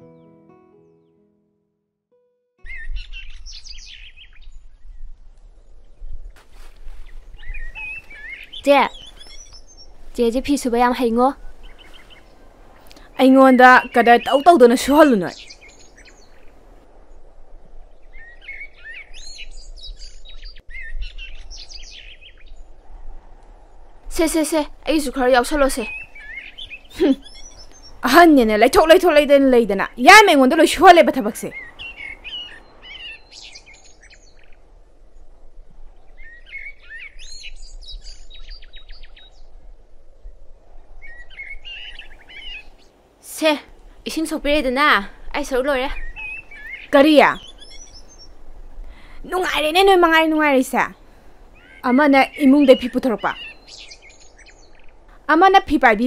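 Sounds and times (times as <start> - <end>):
birds chirping and whistling: 2.6 - 5.1, 6.9 - 16.6, 17.8 - 22.8, 24.3 - 29.2, 30.2 - 34.7, 36.0 - 39.5, 41.0 - 43.0, 44.2 - 56.0
outdoor background hiss: 2.7 - 56.0
low rumble: 15.4 - 28.1.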